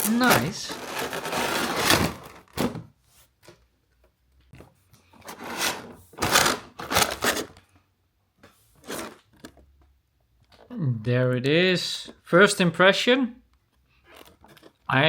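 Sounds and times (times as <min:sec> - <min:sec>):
cardboard packaging rustling: 0:00.0 - 0:02.8, 0:05.2 - 0:07.6, 0:08.7 - 0:09.5.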